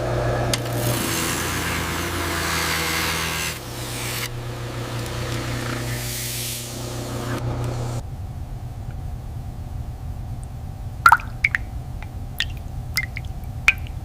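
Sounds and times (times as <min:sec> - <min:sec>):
power tool running: 0:00.5 - 0:07.4.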